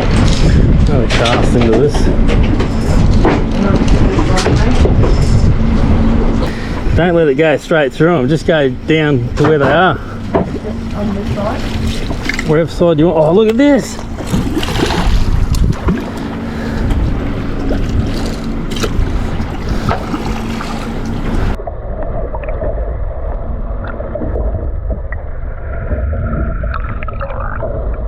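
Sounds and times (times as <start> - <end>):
wind on microphone: 0.0 - 7.6, 13.9 - 28.0
boat engine running: 0.0 - 28.0
water sloshing against hull: 0.0 - 28.0.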